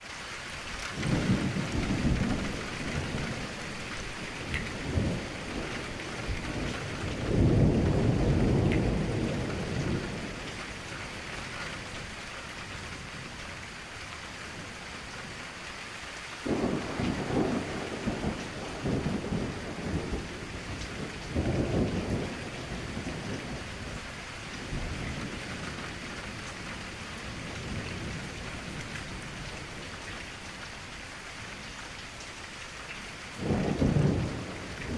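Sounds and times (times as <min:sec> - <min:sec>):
rain on a window: 0:00.0 - 0:34.9
low thunder rolls: 0:00.9 - 0:11.9, 0:16.4 - 0:30.2, 0:33.4 - 0:34.9.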